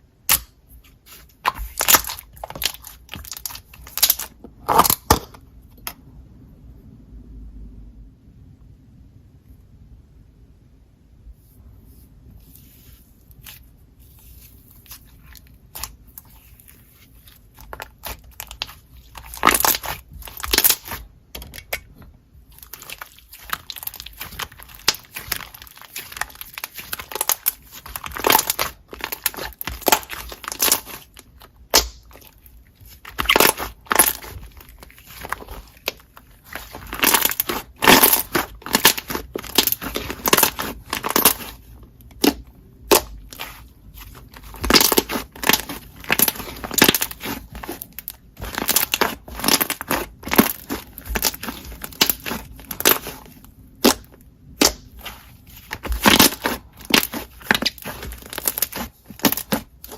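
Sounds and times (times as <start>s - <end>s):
slime squeezed crackling pops: 18.0s - 21.0s, 22.6s - 32.3s, 32.9s - 41.6s, 44.3s - 47.8s.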